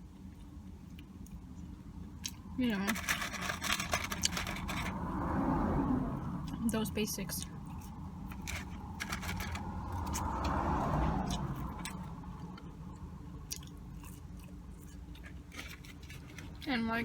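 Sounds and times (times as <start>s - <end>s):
person chewing and crunching: 0.2s - 5.0s, 7.4s - 10.6s, 11.2s - 16.6s.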